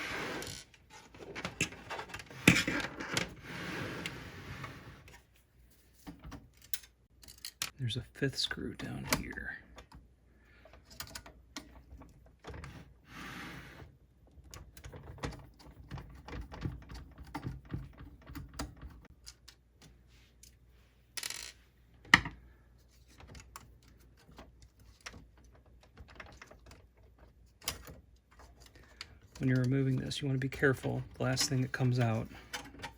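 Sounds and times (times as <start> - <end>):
metal parts being handled: 5.1 - 7.8, 22.2 - 32.9.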